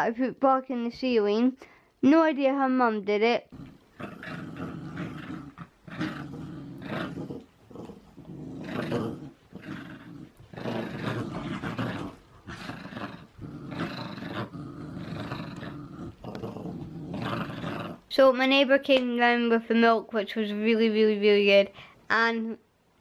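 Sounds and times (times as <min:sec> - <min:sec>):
dog growling: 0:03.5 - 0:18.1.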